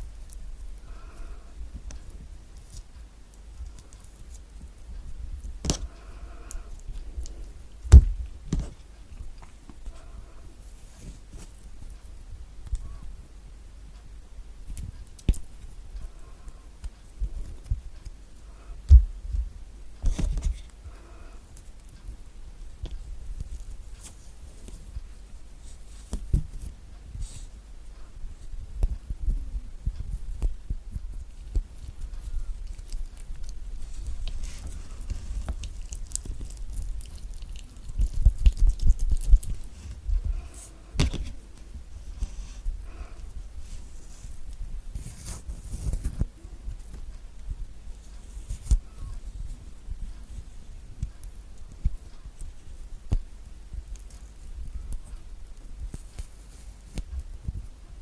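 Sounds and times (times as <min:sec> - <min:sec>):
heavy thump: 0:07.9 - 0:08.8
crisp clicks and knocks: 0:28.8 - 0:40.1.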